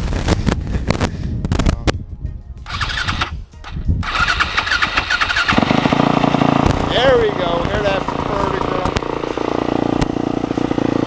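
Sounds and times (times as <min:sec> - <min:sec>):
dirt bike engine starting: 0:02.7 - 0:11.0.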